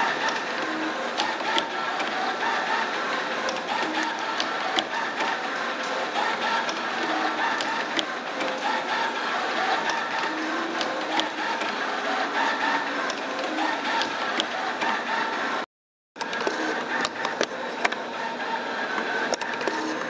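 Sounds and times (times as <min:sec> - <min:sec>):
sharp machine clicks: 0:00.0 - 0:15.1
machine whirring: 0:00.0 - 0:20.0.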